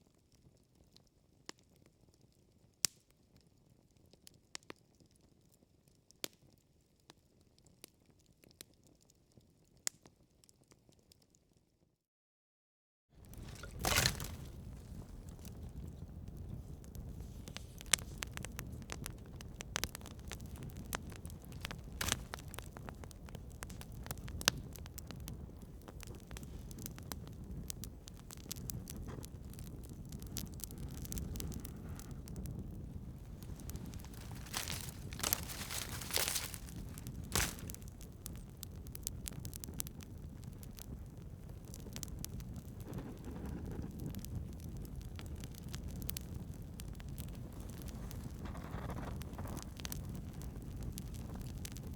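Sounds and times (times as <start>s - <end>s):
campfire crackling and popping: 13.2s - 51.9s
low fire rumble: 13.2s - 51.9s.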